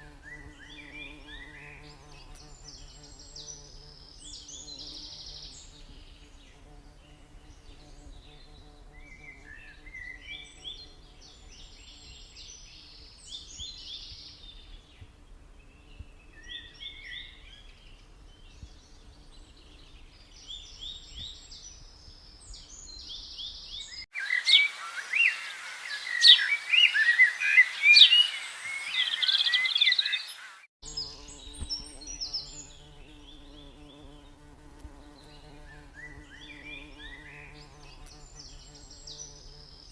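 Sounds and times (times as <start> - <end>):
loud dense birdsong: 0.0 - 39.9
bees buzzing: 30.9 - 39.9.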